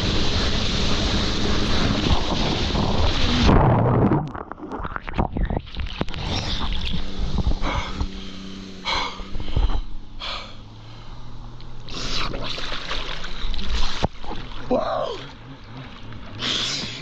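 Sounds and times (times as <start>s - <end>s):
jet ski engine idling: 0.0s - 3.5s, 6.3s - 12.4s, 13.1s - 17.0s
water splashing: 0.0s - 9.8s, 11.6s - 17.0s
person exclaiming: 14.7s - 15.4s.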